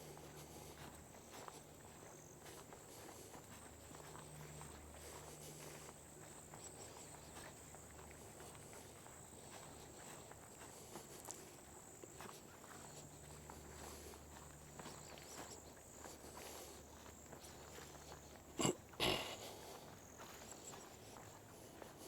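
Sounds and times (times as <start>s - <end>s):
faint footsteps on trail: 0.0s - 22.0s.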